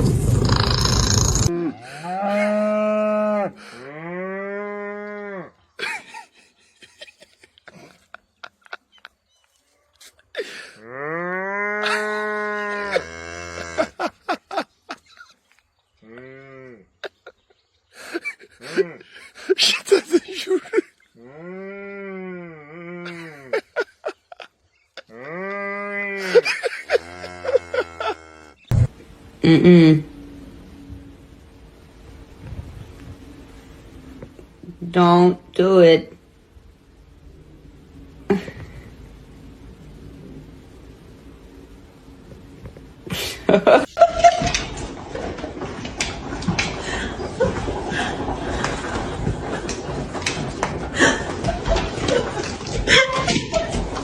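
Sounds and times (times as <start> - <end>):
loud rushing noise: 0.0 - 1.5
long low animal calls: 0.0 - 4.0, 21.2 - 28.7
animal bleats: 10.8 - 14.0, 16.0 - 16.9, 25.1 - 28.7.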